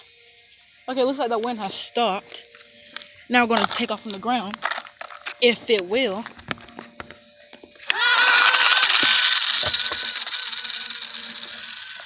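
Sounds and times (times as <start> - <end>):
model plane motor whine: 7.8 - 12.0.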